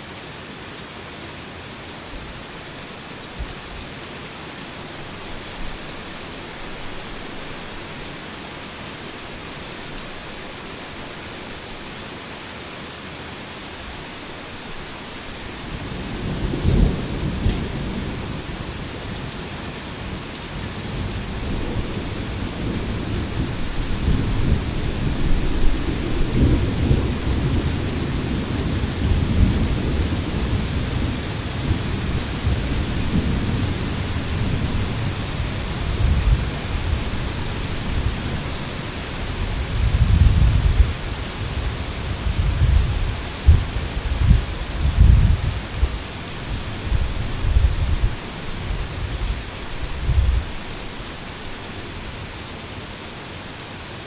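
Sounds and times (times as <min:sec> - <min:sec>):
heavy rain falling: 0:00.0 - 0:54.0
thunder clap and rumble: 0:15.7 - 0:19.6, 0:20.9 - 0:38.6, 0:39.3 - 0:50.5.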